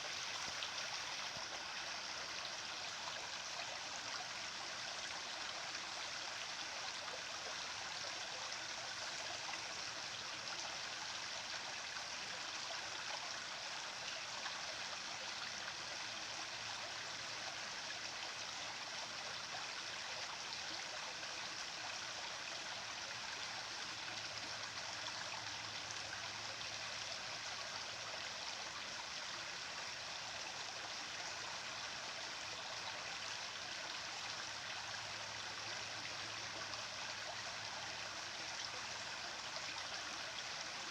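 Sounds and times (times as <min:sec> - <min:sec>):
water rushing like a stream: 0:00.0 - 0:06.8, 0:16.5 - 0:40.9.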